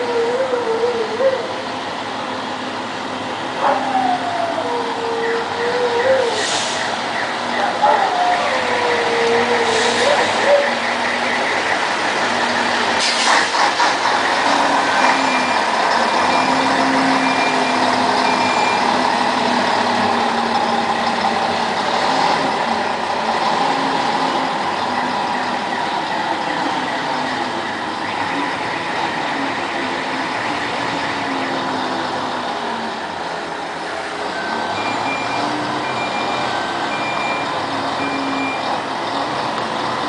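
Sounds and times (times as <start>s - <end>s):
diesel truck engine running: 0.0s - 40.0s
air release hiss: 13.0s - 13.6s
faint high beeps: 16.3s - 18.9s, 34.4s - 38.8s.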